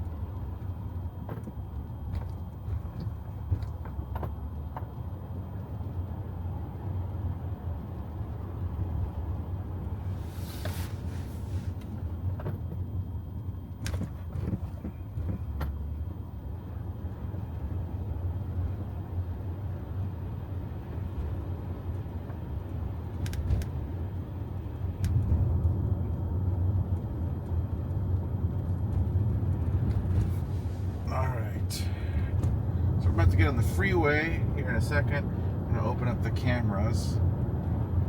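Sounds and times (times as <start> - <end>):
road and tyre rumble in car: 0.0 - 38.0.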